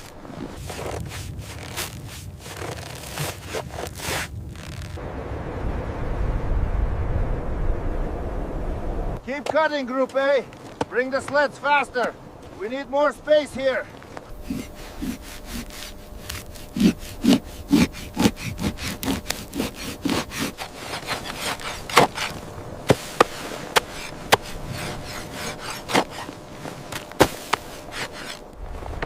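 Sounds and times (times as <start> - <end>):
rhythmic sawing strokes: 14.3 - 28.5.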